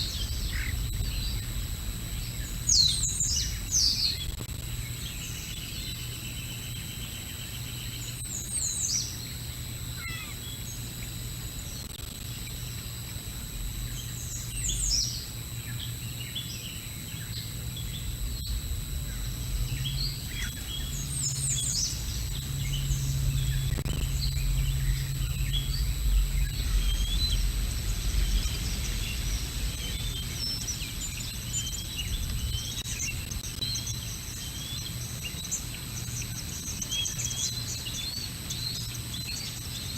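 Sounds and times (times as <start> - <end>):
low rumble: 0.0 - 4.4, 17.6 - 33.3
faint high electronic whine: 0.0 - 39.9
birds chirping and calling: 16.8 - 32.8.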